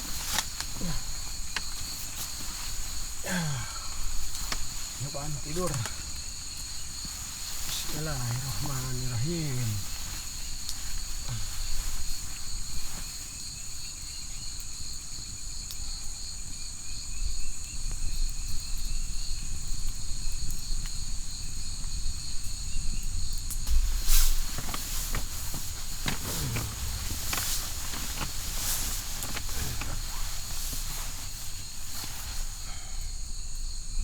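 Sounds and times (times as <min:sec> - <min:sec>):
rustles and clicks: 0:00.0 - 0:13.3, 0:23.7 - 0:32.9
insects chirring: 0:00.0 - 0:34.0
loud rustling knock: 0:23.7 - 0:32.7.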